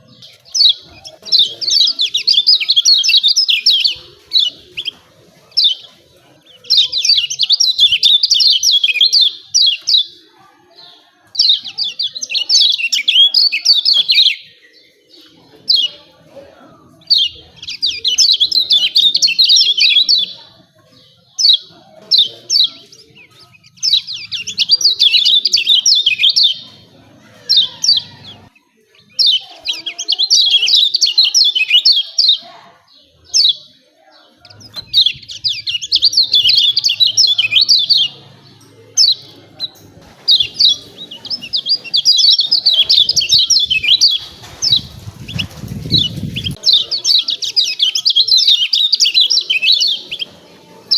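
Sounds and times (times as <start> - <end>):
bird chattering high chirps: 33.2 - 38.2, 39.0 - 50.3.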